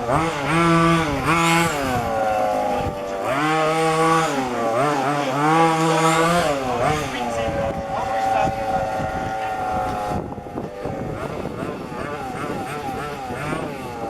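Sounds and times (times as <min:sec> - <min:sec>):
small two-stroke engines revving: 0:00.0 - 0:14.0.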